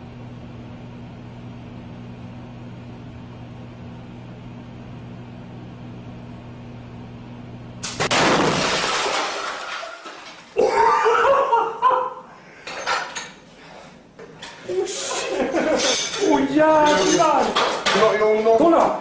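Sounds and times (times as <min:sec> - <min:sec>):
microwave oven humming: 0:00.0 - 0:09.1, 0:10.3 - 0:19.0
box bursting with loud bang: 0:07.9 - 0:09.1.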